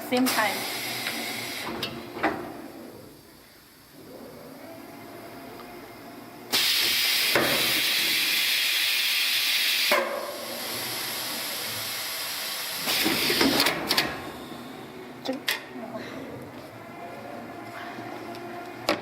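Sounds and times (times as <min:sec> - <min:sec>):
welding machine air hiss: 0:00.2 - 0:01.9, 0:06.5 - 0:14.8.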